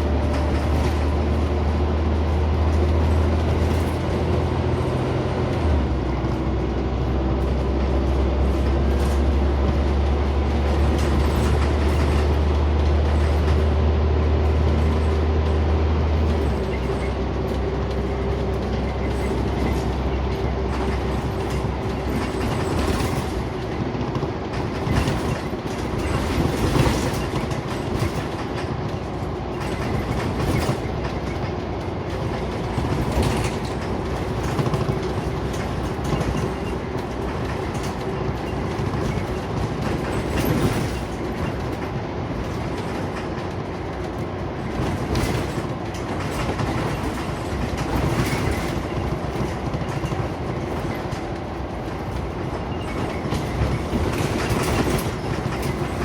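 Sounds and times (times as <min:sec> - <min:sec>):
bus engine and road drone: 0:00.0 - 0:56.0
body knocks and rattles: 0:18.6 - 0:31.6, 0:32.2 - 0:43.4, 0:44.0 - 0:56.0.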